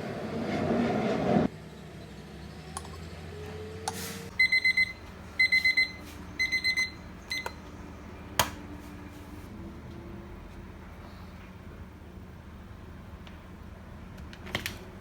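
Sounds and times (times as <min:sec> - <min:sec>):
electronic alarm beeping: 0:04.4 - 0:07.6.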